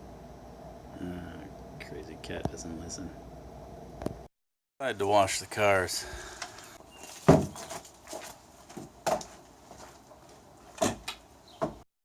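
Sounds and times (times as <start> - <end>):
faint steady hum: 0.0 - 7.1
sharp knocks and thumps: 7.1 - 7.9, 8.7 - 9.4, 10.8 - 11.8.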